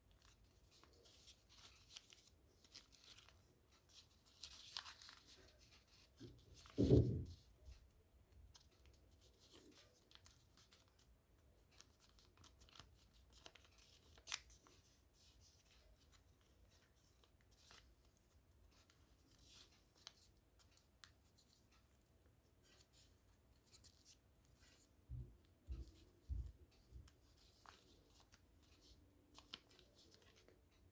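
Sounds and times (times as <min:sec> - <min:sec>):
paper rustling and creasing: 0:00.1 - 0:07.4, 0:08.5 - 0:21.8, 0:25.7 - 0:30.7
low thump: 0:06.8 - 0:07.4.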